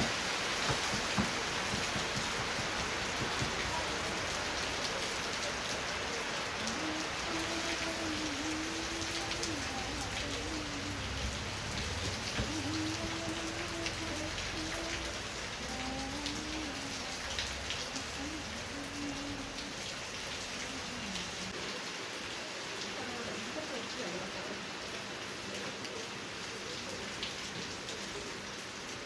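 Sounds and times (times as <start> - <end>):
raindrops ticking: 0.0 - 21.6
steady rain falling: 0.0 - 29.0.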